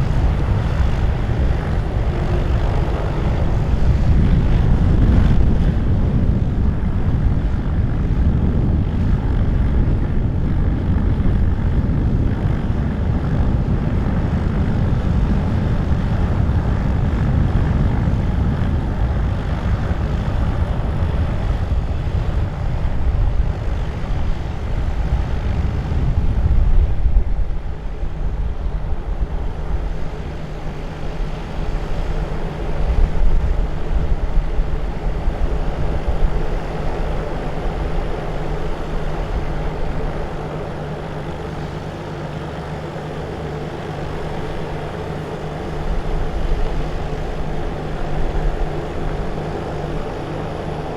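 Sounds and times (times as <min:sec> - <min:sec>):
airliner engine noise: 0:00.0 - 0:50.9
wind buffeting microphone: 0:00.0 - 0:50.9.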